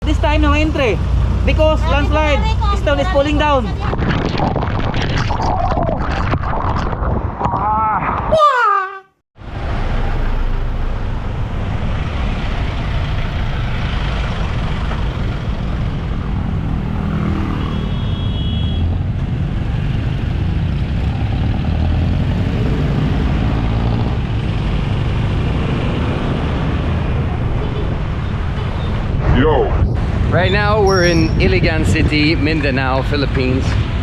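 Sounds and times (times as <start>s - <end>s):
motor vehicles running: 0.0s - 5.1s, 9.4s - 34.0s.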